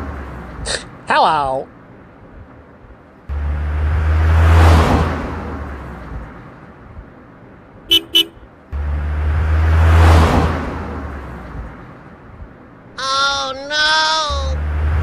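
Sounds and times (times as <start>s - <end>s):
passing car engine rumble: 0.0s - 1.1s, 1.7s - 13.0s, 14.2s - 15.0s
car horn beeps: 7.9s - 8.5s.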